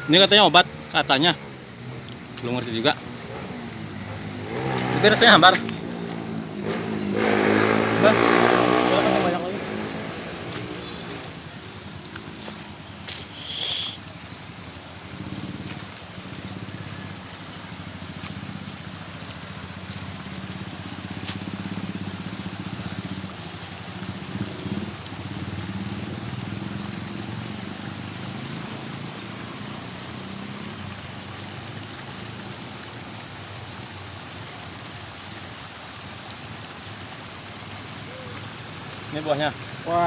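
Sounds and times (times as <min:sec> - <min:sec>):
outdoor hiss: 0:00.0 - 0:40.0.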